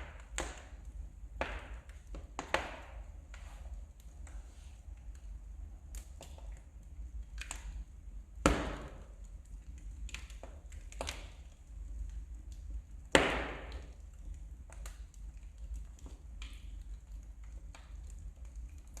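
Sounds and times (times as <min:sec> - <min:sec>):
loud fire pops: 0:00.0 - 0:03.1, 0:08.4 - 0:09.2, 0:13.0 - 0:14.1
wood fire crackling: 0:00.0 - 0:19.0.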